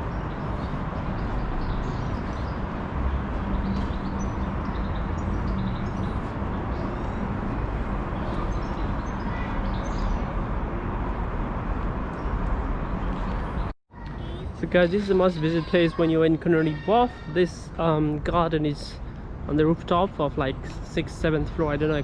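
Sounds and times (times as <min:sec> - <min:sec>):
small birds chirping: 0:00.0 - 0:10.4
low city rumble: 0:00.0 - 0:22.0.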